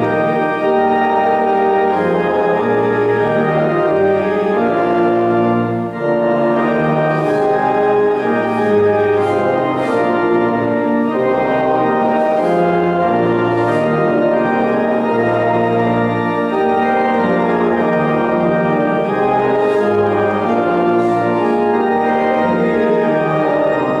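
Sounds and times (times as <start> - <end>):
church organ playing chords: 0.0 - 24.0.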